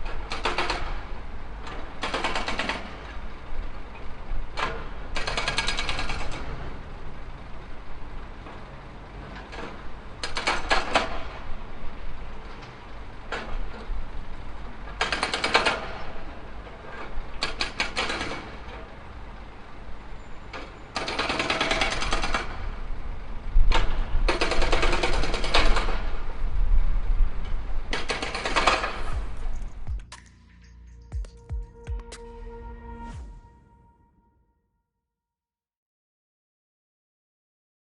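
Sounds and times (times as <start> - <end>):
machine engine running: 28.2 - 34.2.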